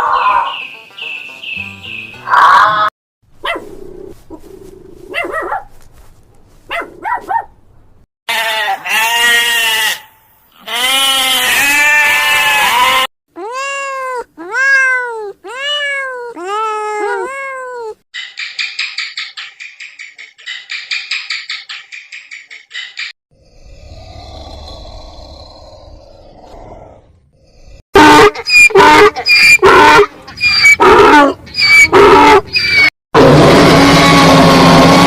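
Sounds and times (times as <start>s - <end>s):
long bleat-like calls: 8.3s - 13.1s
animal calls: 28.0s - 32.9s.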